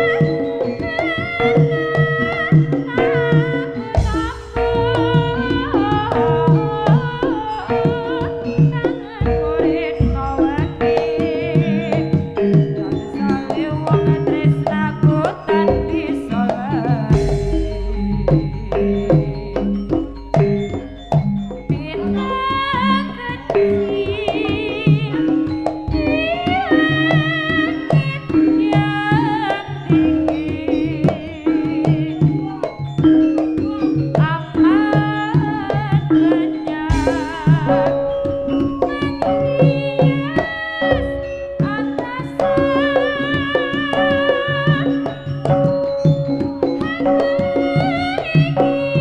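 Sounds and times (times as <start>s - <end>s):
rapid hand drum strokes: 0.0s - 49.0s
wavering melody line: 0.0s - 49.0s
low pitched percussion strokes: 3.8s - 11.2s, 15.5s - 24.0s, 36.7s - 41.8s
gong chime tones: 4.0s - 8.8s, 17.1s - 22.3s
low rumble: 17.2s - 21.4s.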